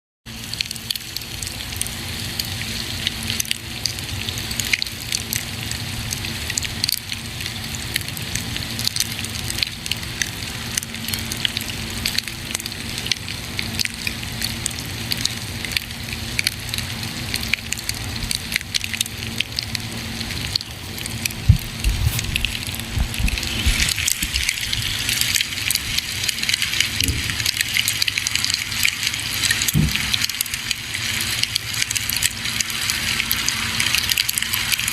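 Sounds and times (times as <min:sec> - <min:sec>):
campfire hiss: 0:20.3 - 0:34.9
low thuds: 0:21.4 - 0:23.8.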